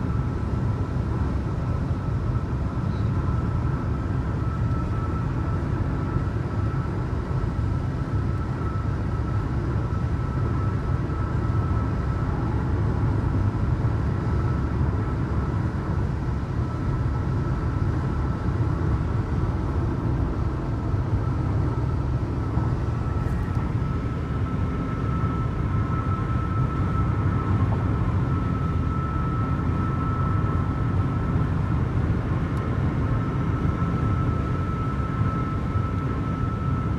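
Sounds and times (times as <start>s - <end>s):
car road and engine rumble: 0.0s - 36.9s
faint high whine: 16.4s - 36.9s.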